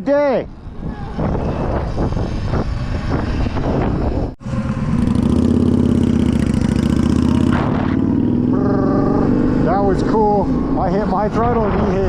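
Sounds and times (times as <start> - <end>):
two-stroke dirt bike engine revving: 4.4 - 10.5.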